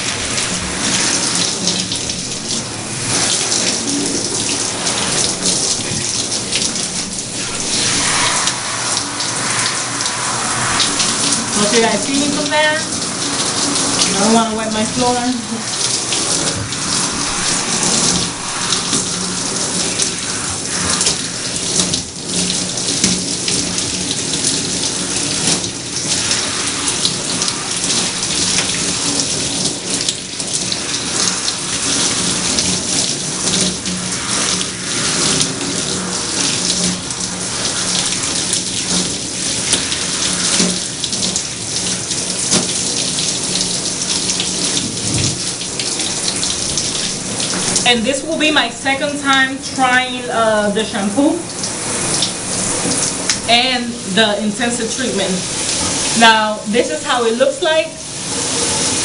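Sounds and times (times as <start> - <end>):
low steady hum: 0.0 - 42.4
tap water running and splashing: 0.0 - 59.0.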